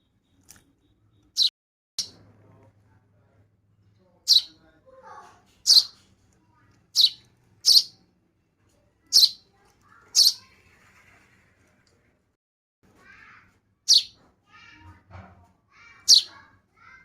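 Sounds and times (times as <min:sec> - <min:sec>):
baby bird chirping: 0:01.3 - 0:02.2, 0:04.3 - 0:04.6, 0:05.6 - 0:06.0, 0:06.9 - 0:08.0, 0:09.1 - 0:10.6, 0:13.1 - 0:14.8, 0:15.9 - 0:16.5.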